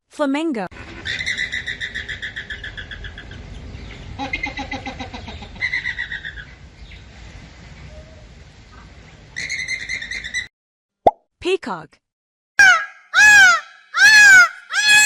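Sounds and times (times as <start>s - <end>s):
flamingos calling: 0.8s - 6.5s.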